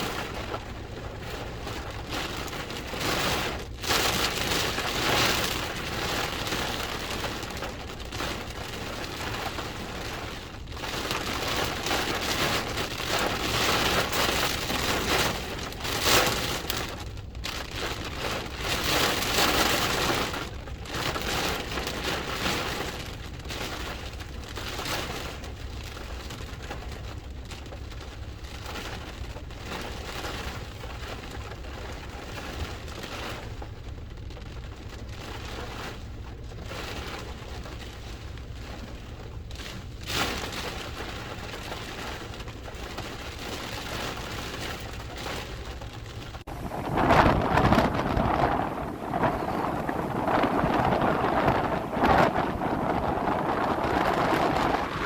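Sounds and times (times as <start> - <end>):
wind gusts: 35.4 - 55.0.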